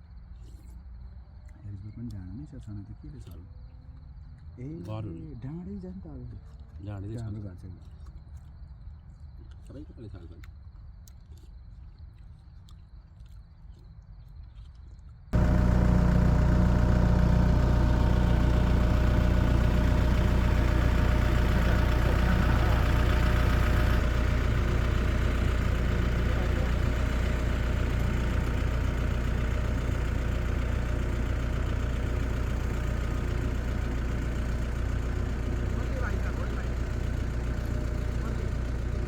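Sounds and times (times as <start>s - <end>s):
tractor engine running: 15.4s - 39.0s.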